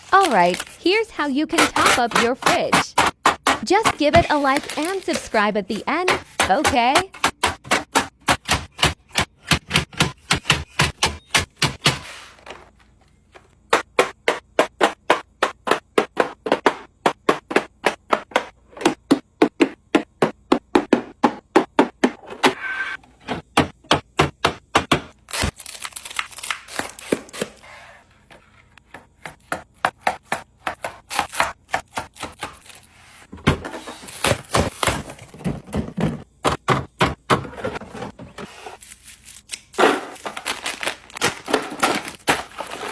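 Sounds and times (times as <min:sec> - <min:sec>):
groceries clacking into fridge: 0:00.0 - 0:22.4, 0:23.2 - 0:38.7, 0:39.7 - 0:42.9.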